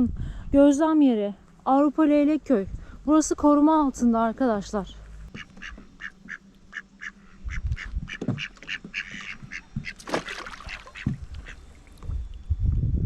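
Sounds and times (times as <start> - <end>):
ducks quacking: 5.3 - 11.8
low thumps: 11.0 - 13.0.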